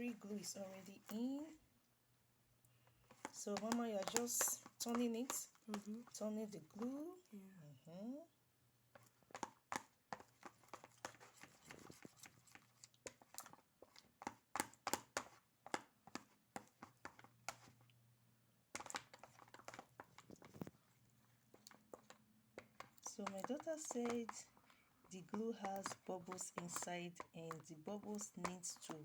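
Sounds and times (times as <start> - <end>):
utensil stirring sticky glue: 0.0 - 1.9, 2.6 - 7.3, 8.0 - 29.0.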